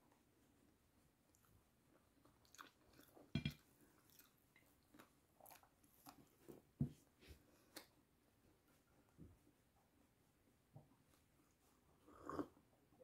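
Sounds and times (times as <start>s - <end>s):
person chewing wetly: 1.3s - 6.4s.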